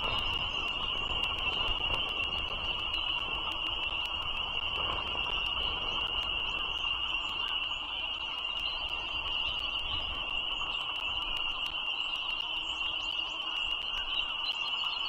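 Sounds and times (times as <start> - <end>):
faint regular clicks: 0.0 - 15.0
frog chorus peeping: 0.0 - 15.0.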